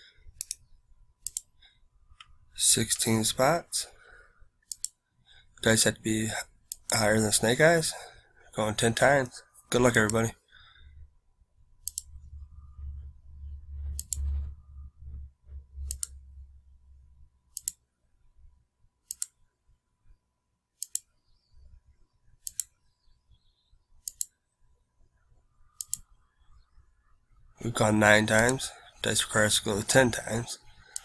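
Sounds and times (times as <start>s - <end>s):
computer mouse clicks: 0.4s - 2.3s, 4.7s - 5.0s, 11.8s - 12.2s, 13.9s - 14.5s, 15.8s - 16.2s, 17.5s - 17.8s, 19.0s - 19.4s, 20.8s - 21.1s, 22.4s - 22.8s, 24.0s - 24.4s, 25.8s - 26.2s, 28.3s - 28.7s, 30.2s - 31.0s
faint low rumble: 10.8s - 17.6s.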